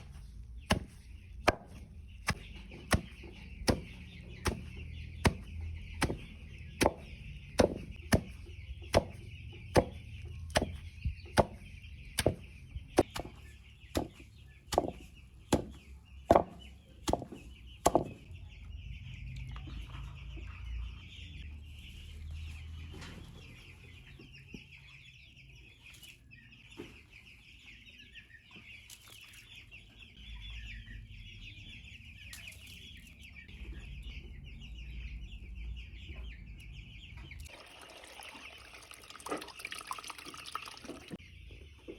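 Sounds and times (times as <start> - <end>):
chicks cheeping: 0.0 - 39.0, 40.4 - 41.9
sharp knocks: 14.0 - 18.2.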